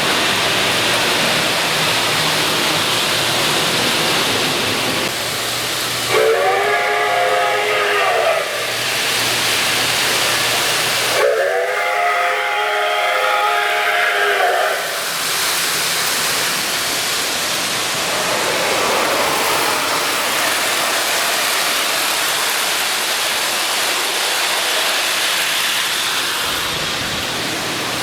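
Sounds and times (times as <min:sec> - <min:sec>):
model locomotive hissing steam: 0:00.0 - 0:28.0
locomotive chord whistle: 0:06.0 - 0:08.8, 0:11.1 - 0:15.0.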